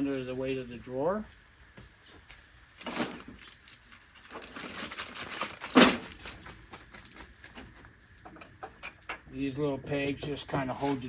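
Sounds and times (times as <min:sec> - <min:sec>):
wood scraping: 0:10.2 - 0:11.0.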